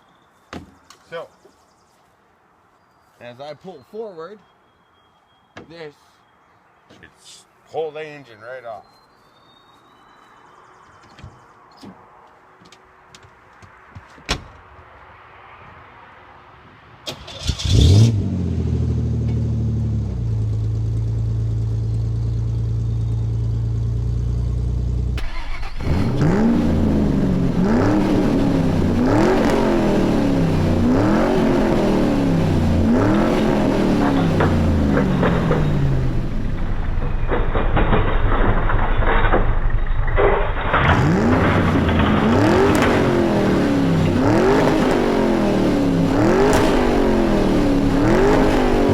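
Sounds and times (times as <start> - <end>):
engine revving: 17.2 - 20.9, 25.2 - 48.9
pickup engine starting and idling: 20.3 - 44.2.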